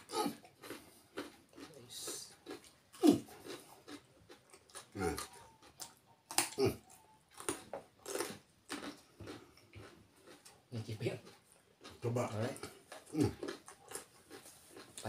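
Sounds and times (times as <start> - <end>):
grunting mouth sounds: 0.0 - 0.5, 2.9 - 3.6, 4.8 - 5.5, 6.4 - 7.0, 12.0 - 13.6
carrot crunching: 0.0 - 15.0.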